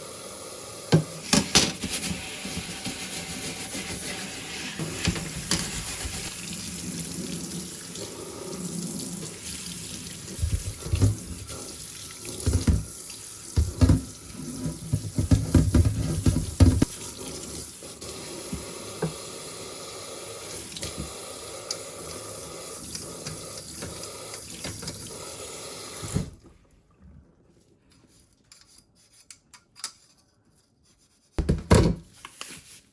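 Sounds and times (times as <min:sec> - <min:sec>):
tap water running into sink: 0:00.8 - 0:26.3
knocks of things handled: 0:31.4 - 0:32.4.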